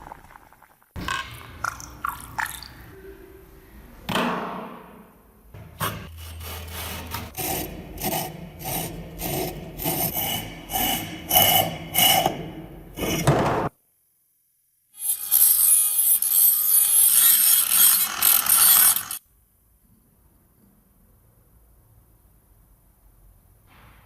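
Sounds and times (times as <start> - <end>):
scrubbing rusty metal: 5.6 - 12.6.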